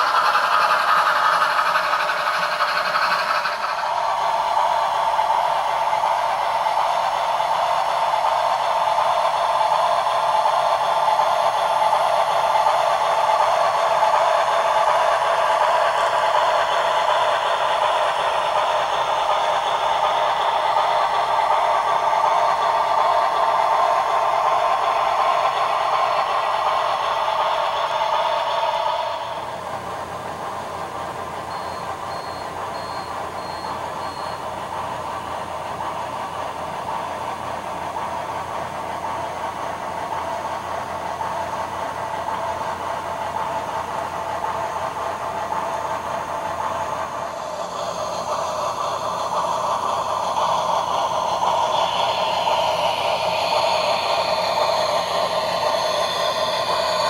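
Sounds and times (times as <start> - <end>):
steam hissing: 0.0 - 29.7, 43.5 - 57.0
short high beeps: 31.5 - 34.4.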